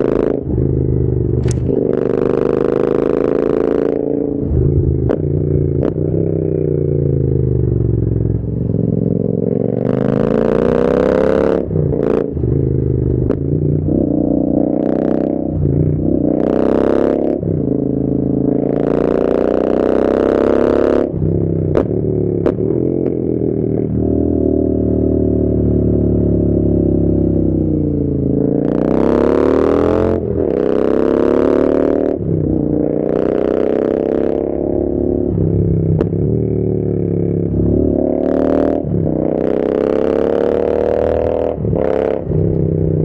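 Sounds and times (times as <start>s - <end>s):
motorcycle engine revving: 0.0s - 43.0s
sharp clicks: 1.4s - 1.8s.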